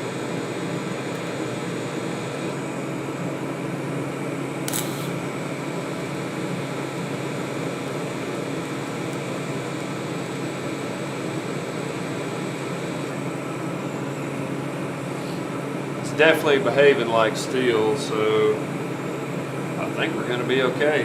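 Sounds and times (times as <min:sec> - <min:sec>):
welder humming and hissing: 0:00.0 - 0:21.0
short sharp click: 0:04.7 - 0:05.2.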